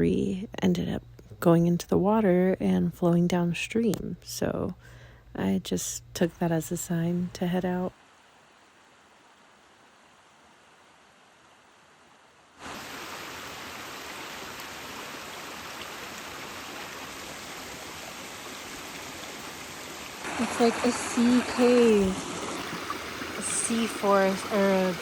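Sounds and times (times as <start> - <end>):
flowing stream water rushing: 12.6 - 25.0.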